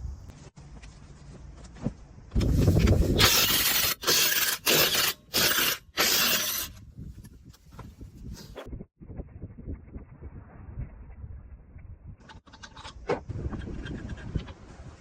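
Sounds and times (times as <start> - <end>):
pneumatic impact wrench: 3.2 - 6.8.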